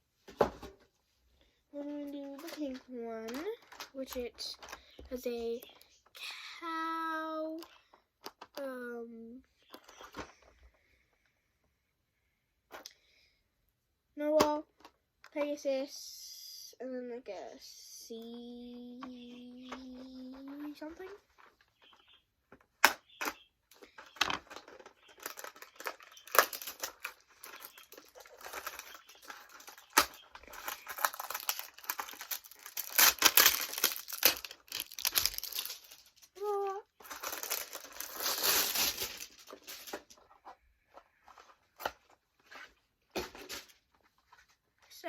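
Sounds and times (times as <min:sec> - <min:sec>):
packaging tearing and crinkling: 0:24.4 - 0:40.2.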